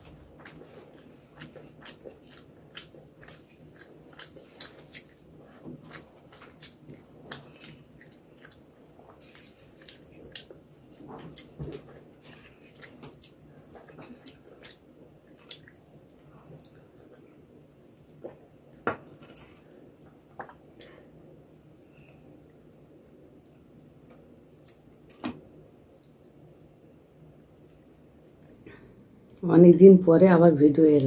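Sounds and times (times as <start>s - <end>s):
chewing food: 0.0s - 25.2s, 25.8s - 26.4s, 27.5s - 28.1s.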